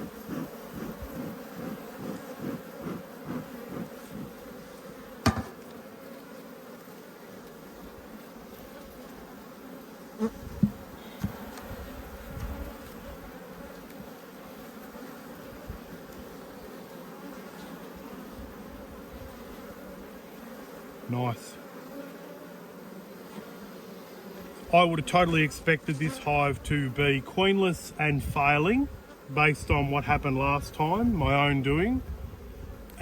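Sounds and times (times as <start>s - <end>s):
bees buzzing: 0.0s - 33.0s
sharp knock: 5.2s - 5.6s
dull thumps: 5.2s - 5.7s, 10.5s - 11.5s.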